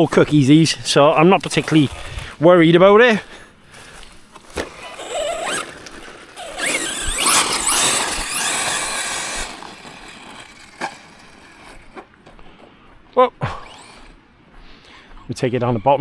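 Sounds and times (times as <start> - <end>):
electric motor whining: 0.0 - 2.4, 3.6 - 12.4, 13.5 - 14.2
rc truck rushing noise: 0.0 - 12.7, 13.5 - 14.2.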